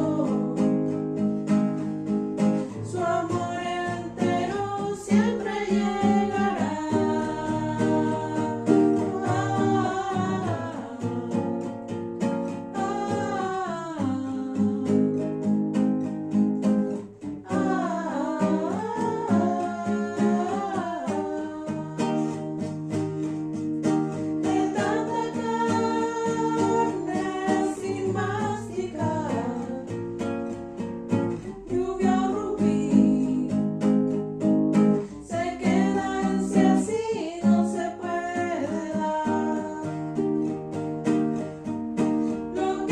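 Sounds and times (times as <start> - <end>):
person singing: 0.0 - 1.0, 2.6 - 11.8, 12.5 - 15.4, 17.4 - 22.5, 24.4 - 30.0, 31.4 - 33.9, 35.0 - 40.0, 42.3 - 42.9
strummed acoustic guitar: 0.0 - 42.9.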